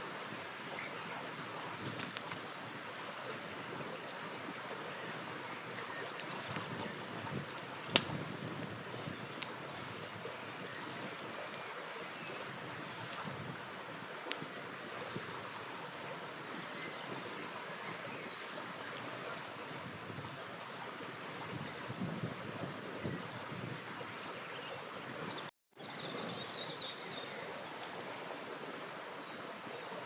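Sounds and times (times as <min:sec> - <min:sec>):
river flowing: 0:00.0 - 0:22.9, 0:23.8 - 0:30.0
campfire crackling and popping: 0:01.8 - 0:02.5, 0:06.1 - 0:10.4.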